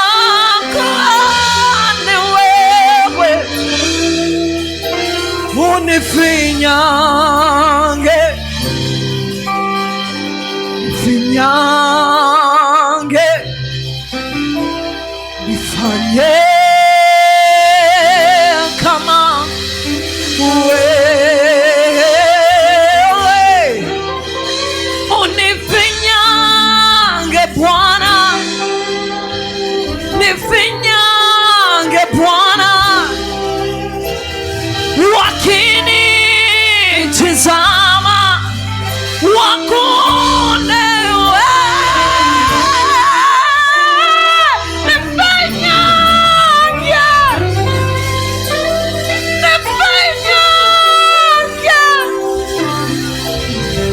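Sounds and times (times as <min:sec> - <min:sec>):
singer holding notes with vibrato: 0:00.0 - 0:53.9
sustained keyboard chords: 0:00.0 - 0:53.9
person singing long wavering notes: 0:31.9 - 0:53.1.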